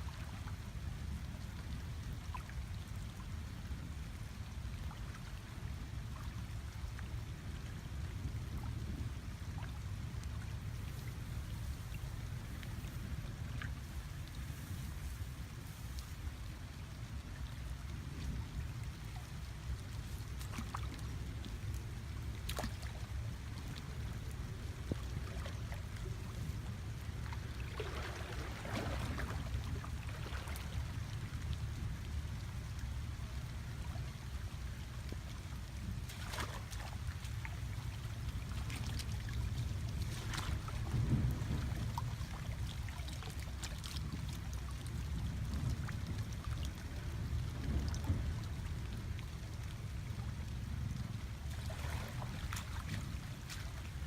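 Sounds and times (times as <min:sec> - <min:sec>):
steady low rumble: 0:00.0 - 0:54.0
water splashing and trickling: 0:00.0 - 0:54.0.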